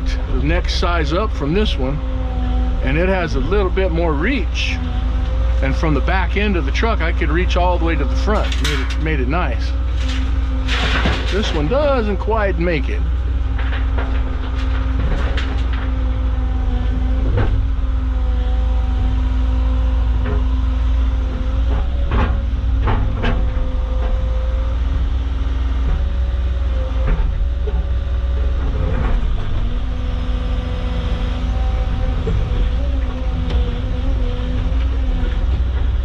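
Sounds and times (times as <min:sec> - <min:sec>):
excavator diesel engine running: 0:00.0 - 0:36.0
rocks clanking against bucket: 0:05.7 - 0:16.2.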